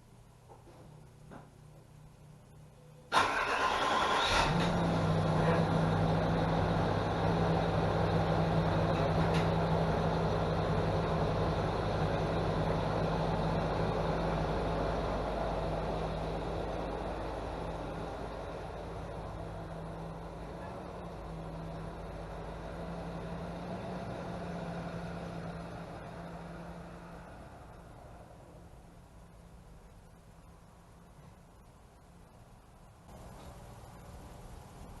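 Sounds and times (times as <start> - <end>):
car starter cranking: 3.1 - 4.8
car engine idling: 3.2 - 35.0.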